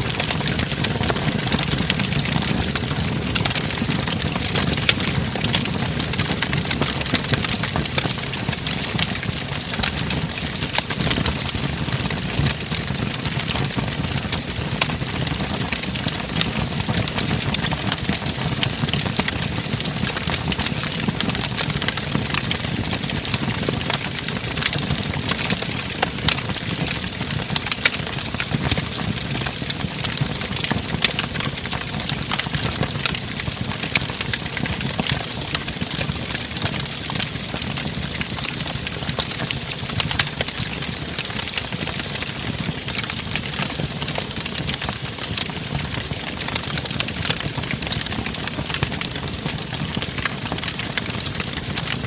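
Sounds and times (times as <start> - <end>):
fire flames rushing: 0.0 - 20.4
logs crackling and popping: 0.0 - 52.0.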